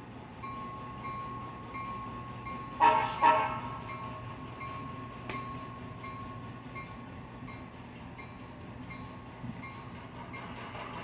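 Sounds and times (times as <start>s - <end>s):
model train engine hum: 0.0s - 11.0s
faint bell ringing: 3.7s - 10.6s.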